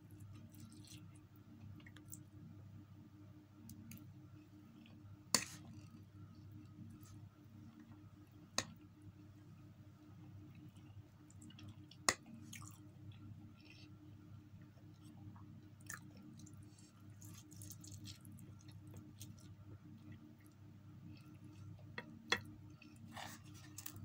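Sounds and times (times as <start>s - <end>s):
steady low hum: 0.0s - 24.0s
person chewing noodles: 11.4s - 13.8s, 15.8s - 19.5s.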